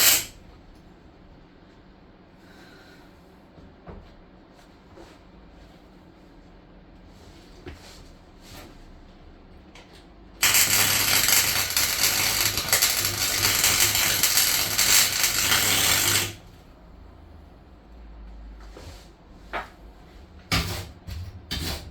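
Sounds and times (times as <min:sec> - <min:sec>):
welding arc crackling: 0:00.0 - 0:00.4, 0:10.4 - 0:16.5.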